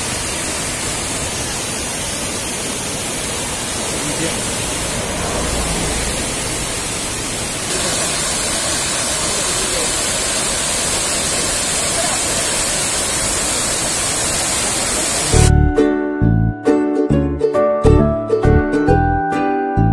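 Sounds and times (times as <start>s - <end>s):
waterfall rushing: 0.0s - 15.5s
plucked-string music: 15.4s - 19.9s.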